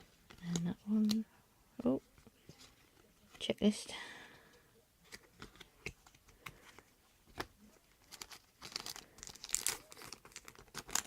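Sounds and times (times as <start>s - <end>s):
wrapper crinkling: 7.9s - 11.0s.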